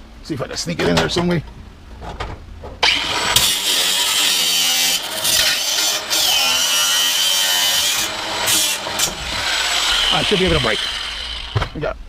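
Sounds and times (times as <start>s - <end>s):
electric power saw cutting: 2.8s - 11.8s.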